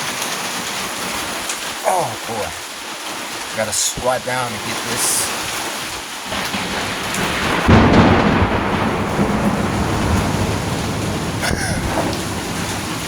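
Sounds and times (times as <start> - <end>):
heavy rain hiss: 0.0 - 13.0
thunder clap rumbling: 6.3 - 13.0.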